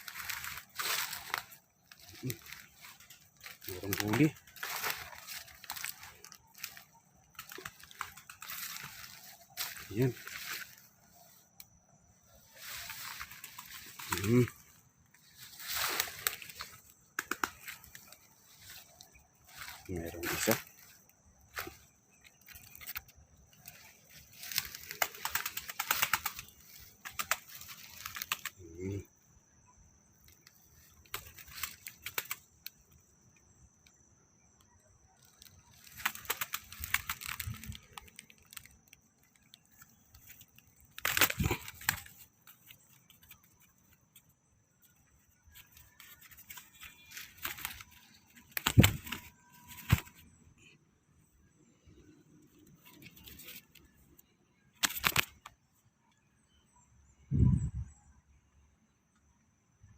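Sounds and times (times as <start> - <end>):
rustling and crackling: 0.0 - 11.7, 12.4 - 29.1, 30.2 - 32.9, 35.2 - 50.3.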